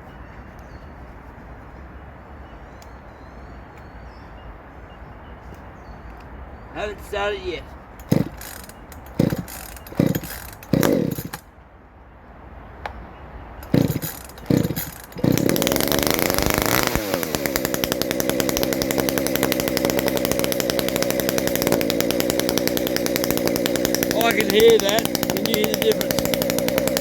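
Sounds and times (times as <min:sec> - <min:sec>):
chainsaw engine revving and idling: 0:08.0 - 0:11.4, 0:13.6 - 0:27.0
chainsaw starter cord pulls: 0:08.0 - 0:11.4, 0:13.6 - 0:27.0.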